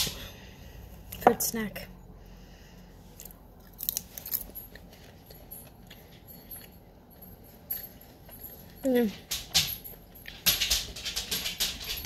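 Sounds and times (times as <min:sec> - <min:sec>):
person chewing crunchy food: 0:03.0 - 0:07.6.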